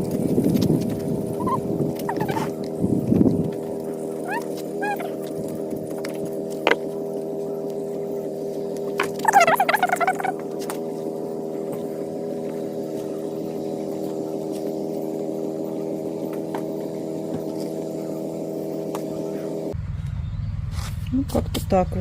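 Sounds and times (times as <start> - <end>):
motor running steadily: 0.0 - 22.0.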